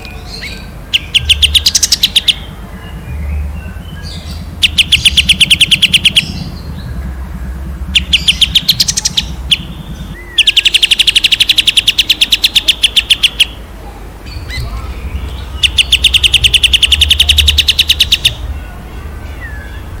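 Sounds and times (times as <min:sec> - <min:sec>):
low steady hum: 0:00.0 - 0:20.0
songbird rapid trills: 0:00.0 - 0:20.0.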